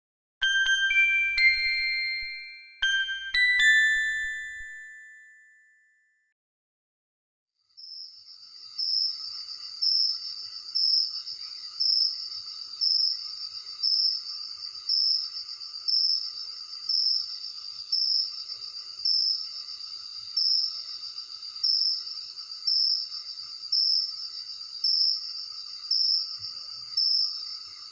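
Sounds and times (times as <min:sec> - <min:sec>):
chime-like tone: 0:00.4 - 0:06.1
crickets trilling: 0:07.8 - 0:27.9.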